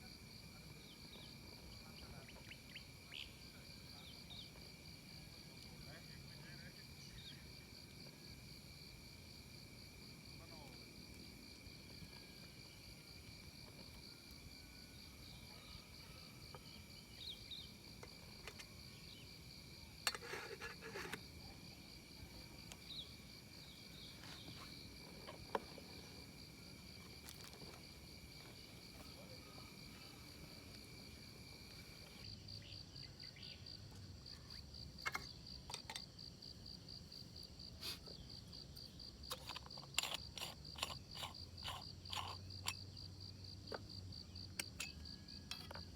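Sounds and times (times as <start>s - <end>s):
high pulsing insect trill: 0.0s - 45.9s
lower steady insect trill: 0.0s - 45.9s.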